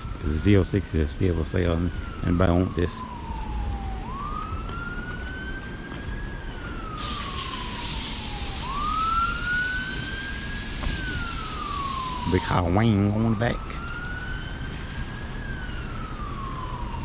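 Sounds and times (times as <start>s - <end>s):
siren wailing: 0.0s - 17.0s
hiss: 7.0s - 12.5s.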